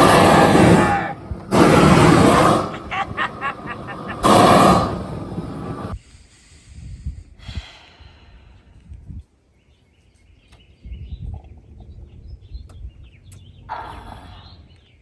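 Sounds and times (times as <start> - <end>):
low rumble: 0.0 - 6.0
rushing burst: 0.0 - 6.0.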